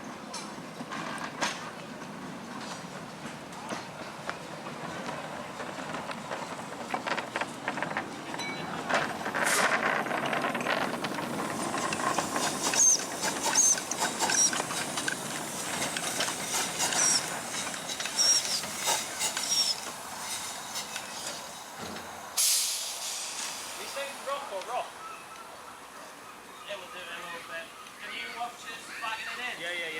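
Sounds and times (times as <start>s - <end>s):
steam locomotive hissing: 10.9s - 24.6s.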